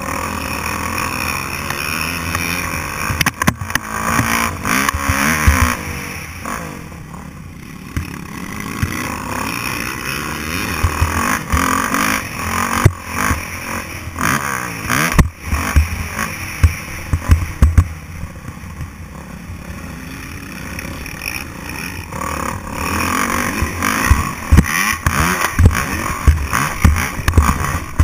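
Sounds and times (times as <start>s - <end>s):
dirt bike engine revving: 0.0s - 28.0s
sharp low thumps and knocks: 15.0s - 18.0s, 23.6s - 28.0s.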